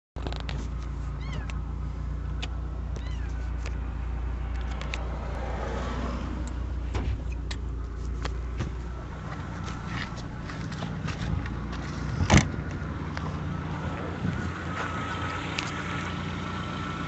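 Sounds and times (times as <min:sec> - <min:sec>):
car engine idling: 0:00.2 - 0:17.0
cat meowing: 0:01.2 - 0:01.6, 0:02.9 - 0:03.4.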